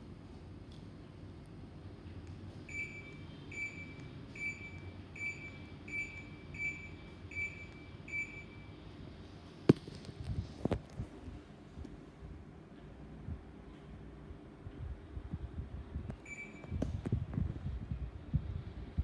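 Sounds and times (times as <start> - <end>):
low steady hum: 0.0 - 19.0
air conditioner short beeps: 2.6 - 8.8, 16.1 - 16.9.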